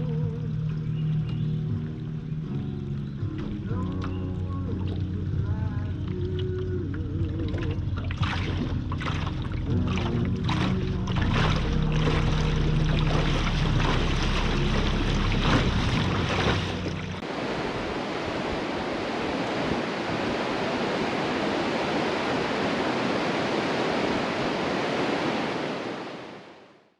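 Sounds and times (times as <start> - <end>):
boat motor running: 0.0 - 17.9
water splashing against hull: 0.0 - 26.4
steady rushing noise: 8.2 - 26.8.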